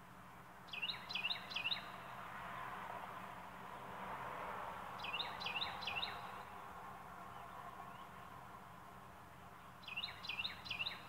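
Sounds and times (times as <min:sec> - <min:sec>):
songbird singing: 0:00.3 - 0:02.2, 0:05.0 - 0:11.0.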